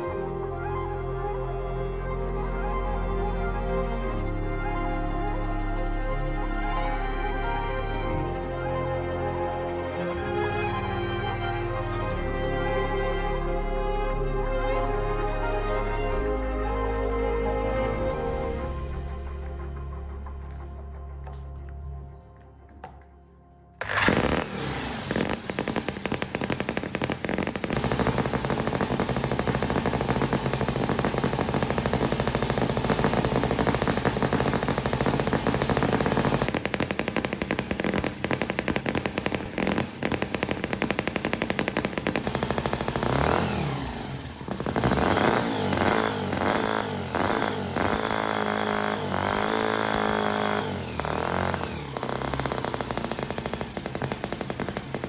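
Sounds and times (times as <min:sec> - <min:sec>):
miniature engine popping exhaust: 0:23.8 - 0:55.0.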